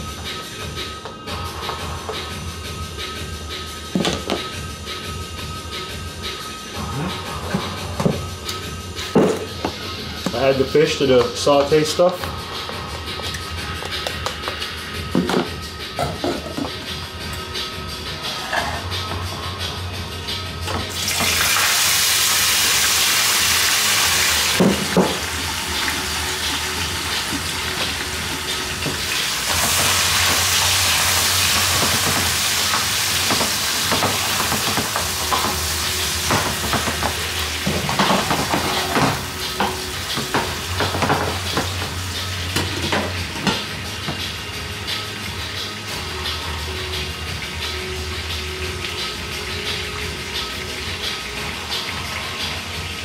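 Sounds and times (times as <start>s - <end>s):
fish sizzling in hot oil: 20.9s - 53.0s.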